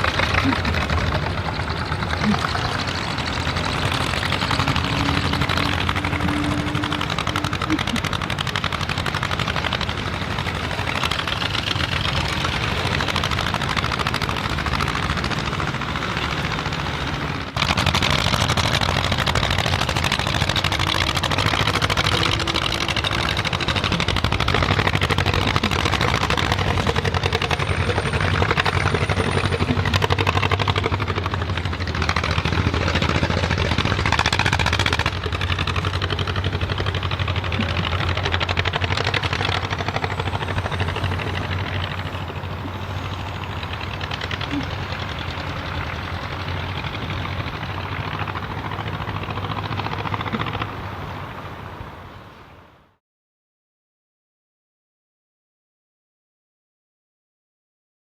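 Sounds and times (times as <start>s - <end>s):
tractor diesel engines driving by: 0.0s - 53.0s.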